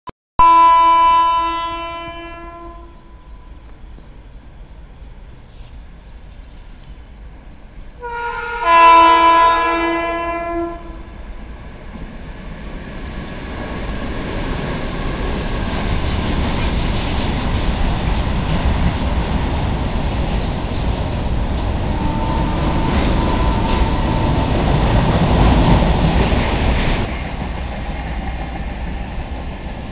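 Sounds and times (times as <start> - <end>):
locomotive horn: 0.4 - 3.4, 8.0 - 11.2, 21.7 - 25.6
train wheels clattering on rails: 11.3 - 29.9.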